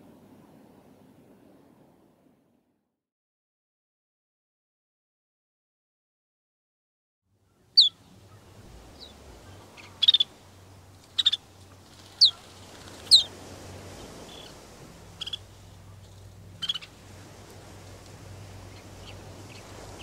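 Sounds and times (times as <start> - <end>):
faint low hum: 7.4 - 20.0
bird calling with falling notes: 7.8 - 10.4, 11.1 - 13.3.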